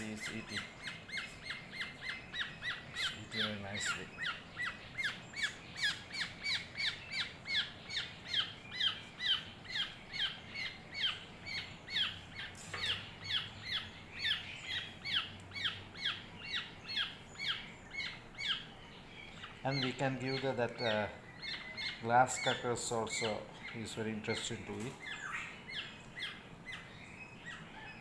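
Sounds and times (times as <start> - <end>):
bird chick begging squawks: 0.0 - 18.7.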